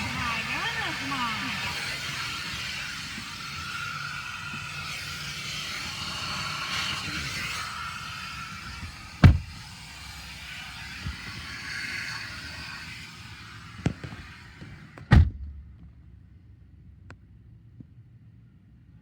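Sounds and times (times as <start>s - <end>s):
car wash hissing: 0.0s - 16.0s
car doors shutting: 8.2s - 9.7s, 13.8s - 15.8s.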